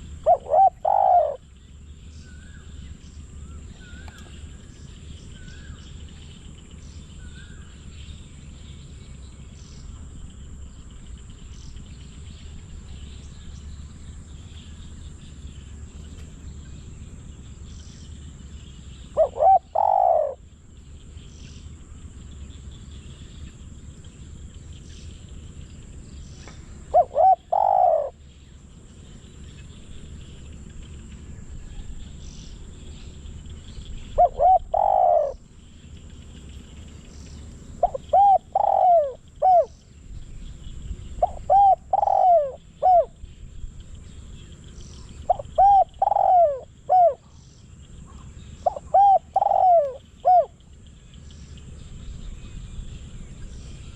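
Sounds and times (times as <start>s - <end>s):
dove cooing: 0.0s - 1.6s, 12.5s - 20.5s, 26.4s - 39.9s, 40.7s - 43.3s, 45.0s - 47.4s, 48.1s - 50.6s.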